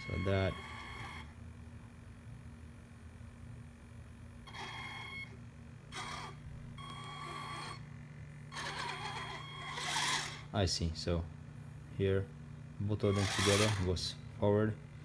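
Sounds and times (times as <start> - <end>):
electric motors whirring: 0.0 - 1.3, 4.5 - 10.5, 13.0 - 14.0.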